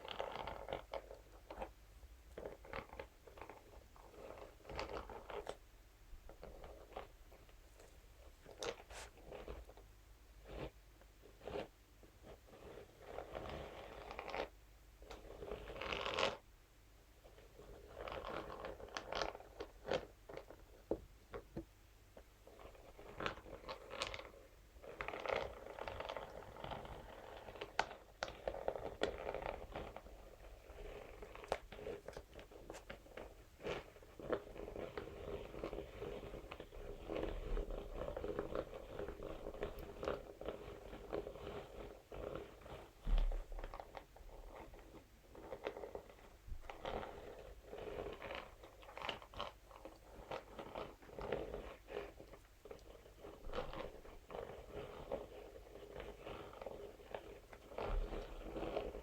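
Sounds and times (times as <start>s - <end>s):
brush scratching against material: 2.3s - 5.6s, 6.3s - 9.8s, 10.4s - 16.4s, 17.2s - 20.8s, 22.4s - 59.0s.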